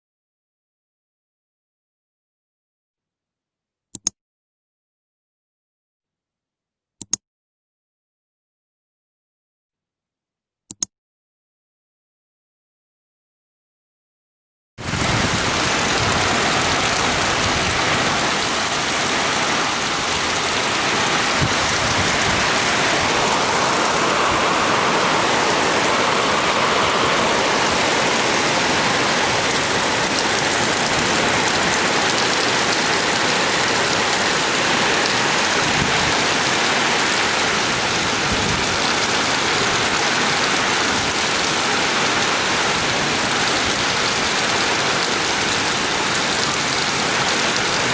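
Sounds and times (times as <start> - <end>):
heavy rain: 14.8 - 47.9
strong storm wind: 14.8 - 47.9.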